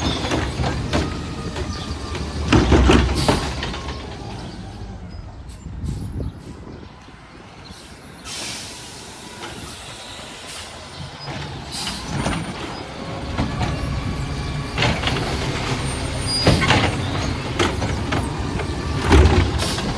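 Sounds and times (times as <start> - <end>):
garbage truck engine rumble: 0.0 - 19.9
air-brake hisses: 7.8 - 11.1.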